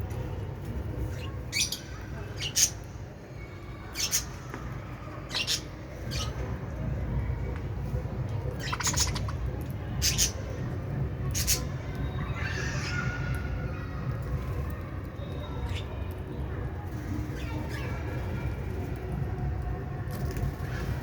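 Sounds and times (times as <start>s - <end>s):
lovebirds squawking and chirping: 1.2s - 2.9s, 4.0s - 4.3s, 5.3s - 6.4s, 8.6s - 9.4s, 10.0s - 10.4s.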